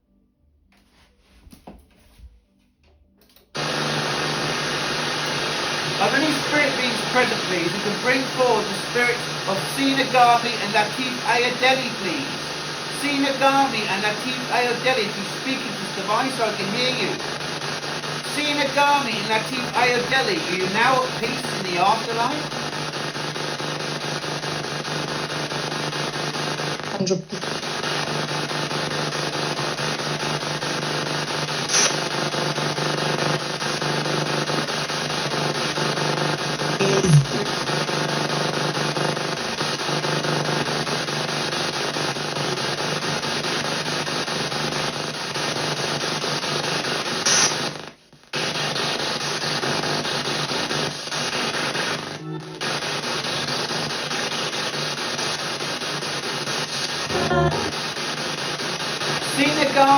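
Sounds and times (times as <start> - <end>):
choppy radio static and hiss: 3.6 - 59.9.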